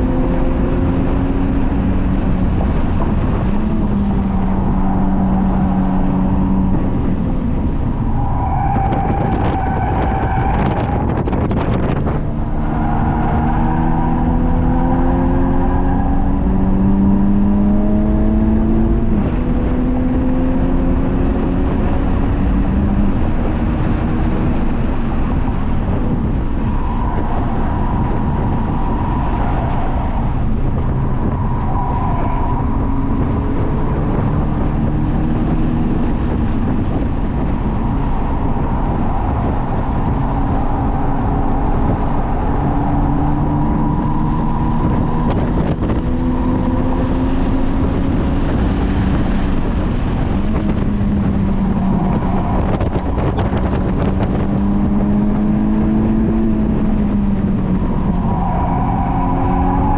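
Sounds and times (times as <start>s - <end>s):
car engine accelerating: 0.0s - 59.9s
road and tyre noise: 0.0s - 59.9s.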